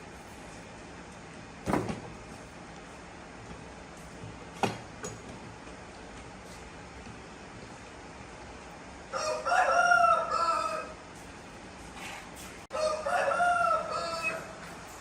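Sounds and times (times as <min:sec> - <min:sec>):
rooster crowing: 0:09.1 - 0:11.0, 0:12.7 - 0:14.7.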